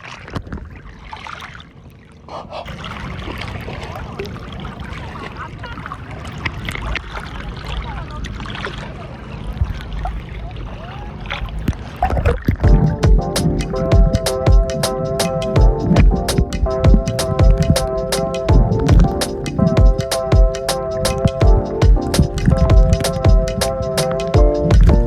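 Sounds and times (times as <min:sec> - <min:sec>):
water sloshing around a boat: 0:00.0 - 0:13.0.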